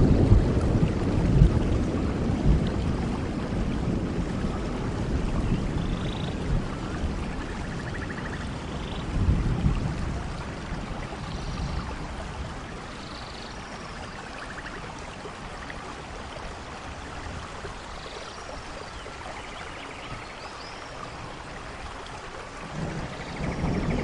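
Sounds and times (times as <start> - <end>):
low rumble of thunder: 0.0 - 17.9, 21.2 - 24.0
steady rain: 0.0 - 24.0.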